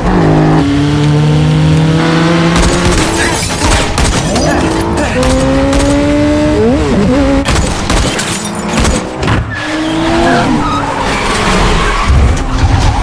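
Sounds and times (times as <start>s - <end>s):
car engines revving hard: 0.0s - 13.0s
tyres squealing and skidding: 9.3s - 13.0s.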